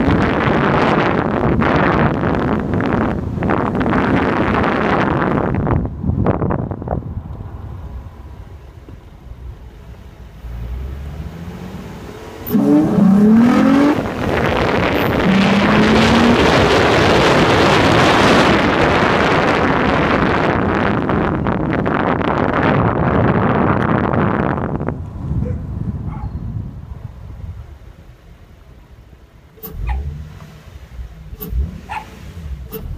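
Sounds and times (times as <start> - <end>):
engine revving: 10.4 - 19.1, 29.6 - 32.9
loud steady rushing noise: 11.4 - 21.2.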